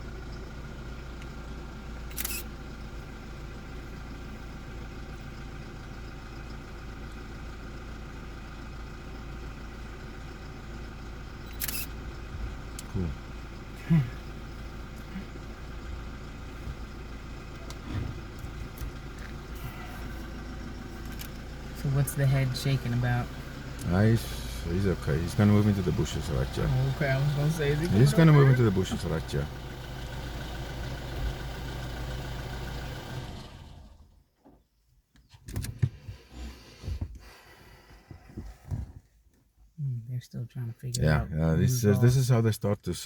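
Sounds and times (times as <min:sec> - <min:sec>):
vehicle engine idling: 0:00.0 - 0:39.9, 0:40.6 - 0:43.0.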